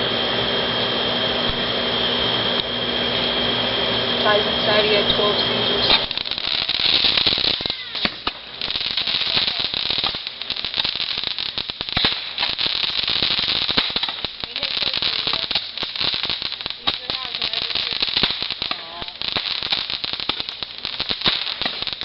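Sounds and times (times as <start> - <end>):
fireworks crackling pops: 1.4 - 1.8, 4.2 - 22.0
sharp firework cracks: 5.8 - 22.0.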